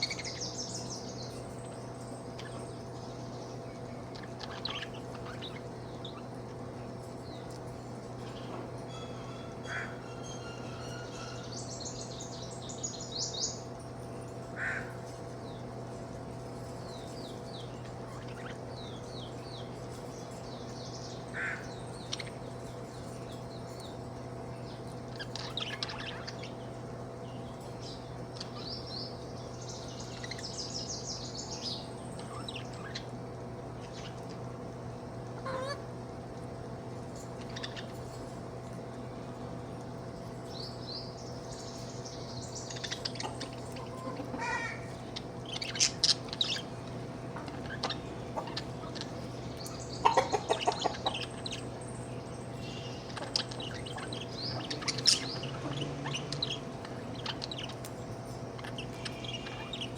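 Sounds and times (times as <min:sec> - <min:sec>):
steady low hum: 0:00.0 - 0:59.9
budgerigar chattering: 0:42.6 - 0:46.7, 0:47.4 - 0:51.7.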